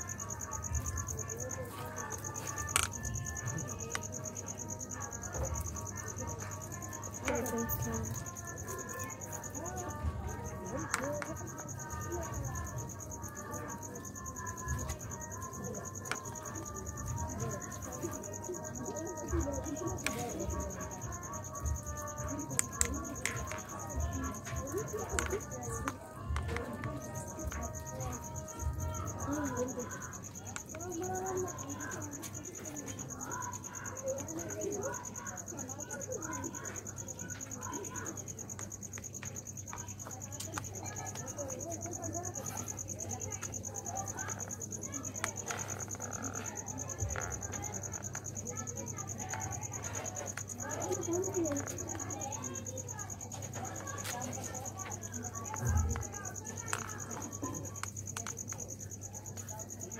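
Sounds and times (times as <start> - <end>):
cricket chirping: 0.0 - 59.9.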